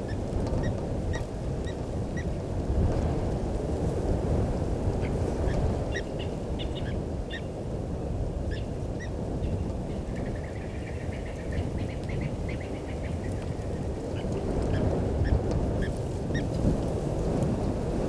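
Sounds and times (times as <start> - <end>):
steady low rumble: 0.0 - 18.0
wild birds chirping: 5.9 - 7.6, 8.5 - 16.5.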